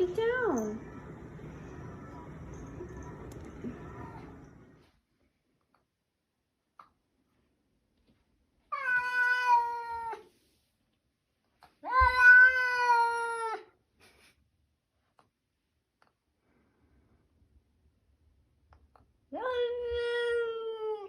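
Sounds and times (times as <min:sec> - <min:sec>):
cat meowing: 0:08.7 - 0:10.2, 0:11.8 - 0:13.6.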